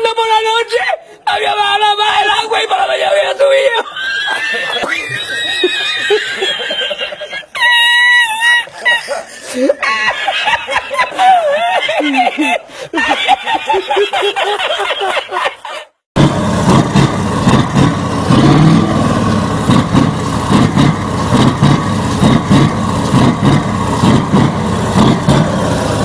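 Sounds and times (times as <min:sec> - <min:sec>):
people laughing: 0:03.4 - 0:16.0
diesel truck engine revving: 0:16.2 - 0:26.0.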